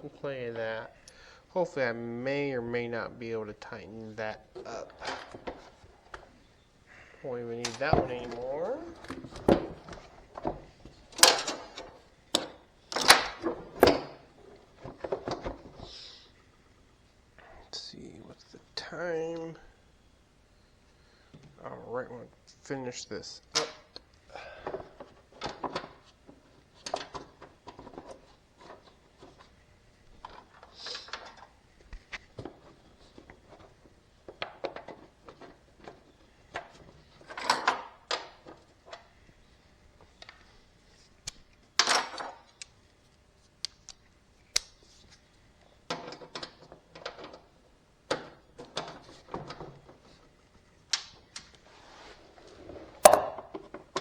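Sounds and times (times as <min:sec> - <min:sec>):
tools and metal parts clinking: 0:11.2 - 0:14.0.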